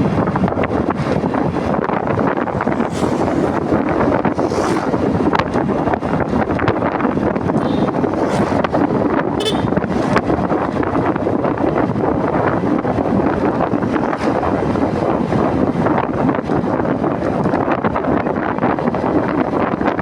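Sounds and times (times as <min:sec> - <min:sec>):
motorcycle running: 0:00.0 - 0:20.0
wind noise on microphone: 0:00.0 - 0:20.0.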